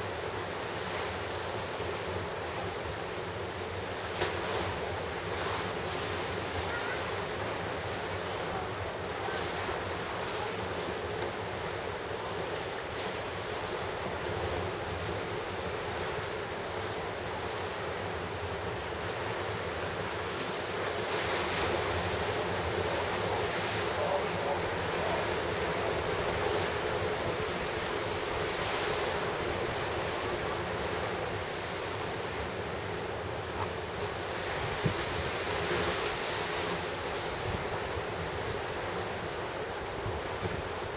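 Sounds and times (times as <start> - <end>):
ocean waves breaking: 0.0 - 40.9
wind on microphone: 34.1 - 40.9.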